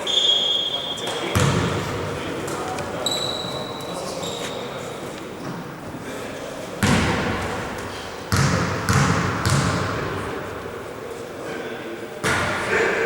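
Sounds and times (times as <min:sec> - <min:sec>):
basketball bouncing on gym floor: 0:01.3 - 0:01.8, 0:06.8 - 0:07.5, 0:08.3 - 0:10.2.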